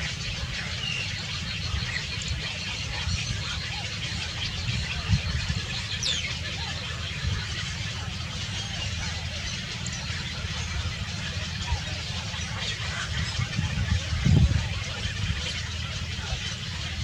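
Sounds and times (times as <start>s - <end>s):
low rumble and hiss: 0.0s - 17.0s.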